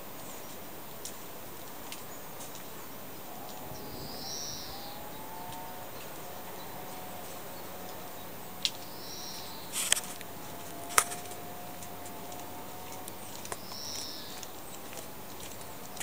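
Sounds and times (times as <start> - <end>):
steady background hiss: 0.0 - 16.0
faint clicks: 3.4 - 3.7, 4.7 - 8.0, 8.6 - 16.0
bird call: 3.4 - 16.0.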